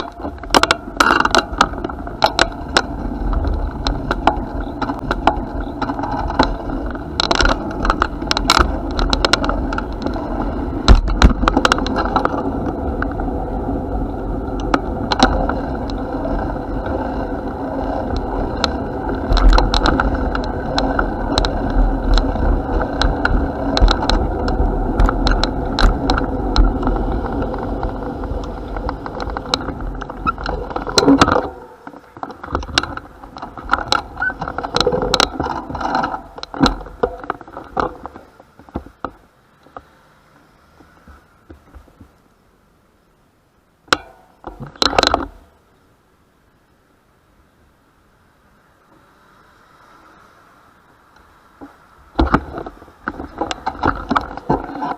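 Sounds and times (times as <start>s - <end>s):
bicycle chain and frame rattling: 0.0s - 39.0s
bicycle tyres rolling on path: 0.0s - 43.1s, 46.8s - 54.9s
wind rumbling on microphone: 0.0s - 43.1s, 47.7s - 54.9s.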